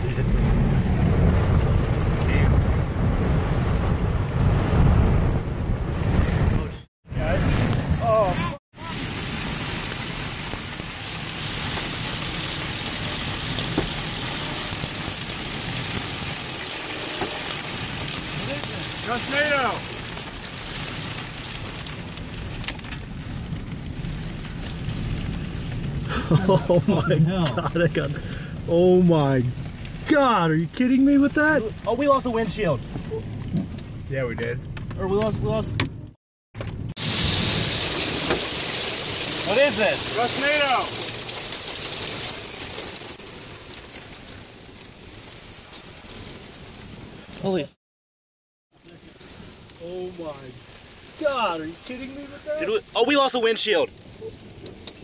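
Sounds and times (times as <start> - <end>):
strong wind buffeting microphone: 0.0 - 8.6.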